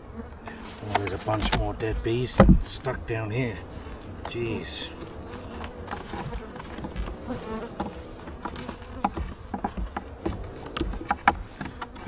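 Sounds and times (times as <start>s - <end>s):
honeybees buzzing: 0.0s - 12.0s
light knocks and clicks: 0.9s - 2.9s, 5.9s - 12.0s.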